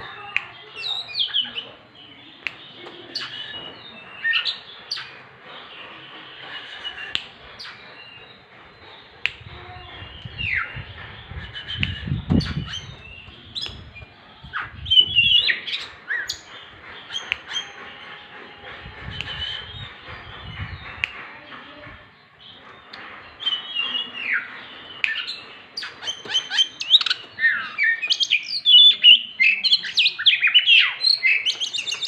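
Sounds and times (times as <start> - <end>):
bird singing chirps and whistles: 0.8 - 5.1, 9.4 - 18.1, 19.0 - 21.2, 22.7 - 32.0.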